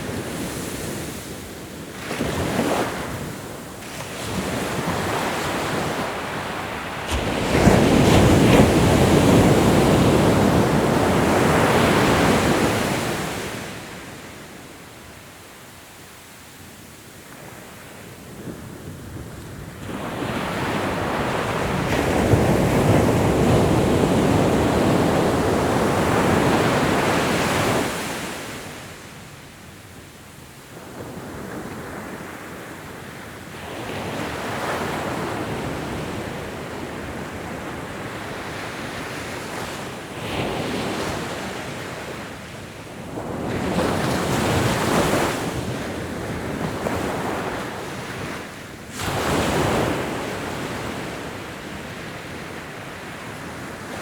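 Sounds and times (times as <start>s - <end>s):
ocean waves breaking: 2.0s - 14.1s.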